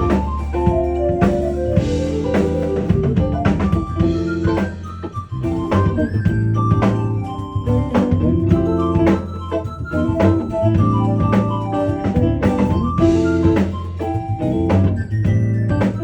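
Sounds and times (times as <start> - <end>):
bass line: 0.0 - 16.0
drum beat: 0.0 - 16.0
keyboard chords: 0.0 - 16.0.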